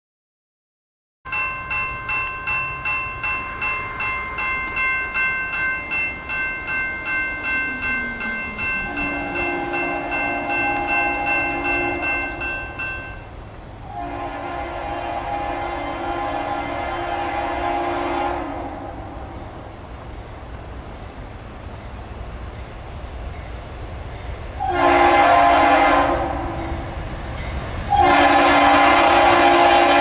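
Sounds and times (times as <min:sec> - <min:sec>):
railroad warning bell dinging: 0:01.3 - 0:19.6, 0:21.8 - 0:30.0
locomotive horn: 0:08.8 - 0:12.5, 0:13.9 - 0:19.4, 0:24.6 - 0:26.9, 0:27.9 - 0:30.0.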